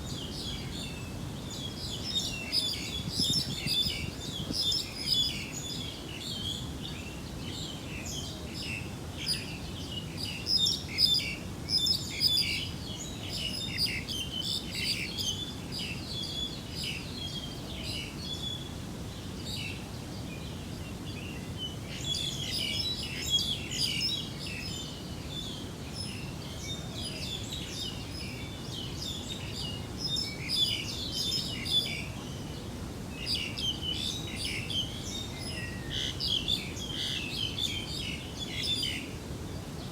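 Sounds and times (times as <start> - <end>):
small birds chirping: 0.0 - 39.9
steady low hiss: 0.0 - 39.9.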